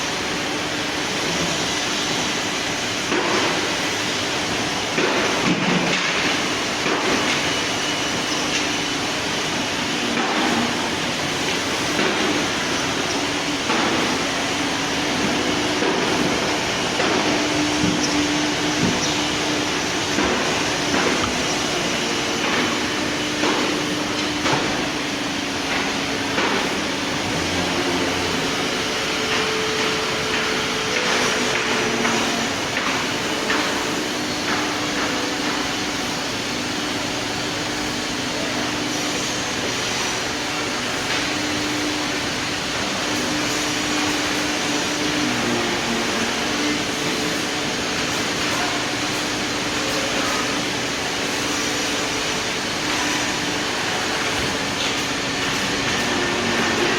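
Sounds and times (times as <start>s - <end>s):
router spindle hum: 27.0s - 32.5s
router cutting wood: 27.2s - 32.5s.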